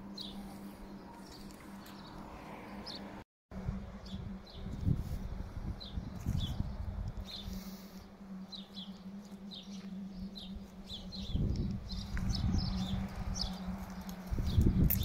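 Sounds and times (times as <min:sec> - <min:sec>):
small birds chirping: 0:00.0 - 0:03.1, 0:04.0 - 0:15.0
steady low hum: 0:00.0 - 0:15.0
microphone rumbling: 0:03.6 - 0:07.6.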